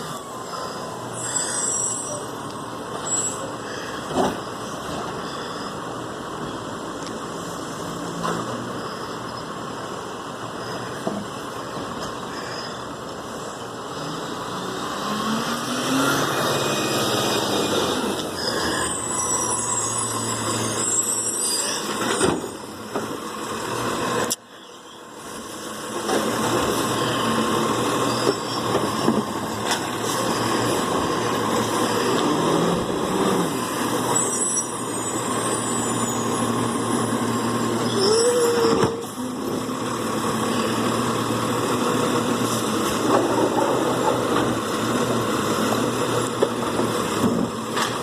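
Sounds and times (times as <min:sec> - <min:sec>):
recycling truck engine and machinery: 0:00.0 - 0:48.0
brief high squeals: 0:00.6 - 0:02.4, 0:03.0 - 0:03.5, 0:18.4 - 0:22.3, 0:37.8 - 0:39.1.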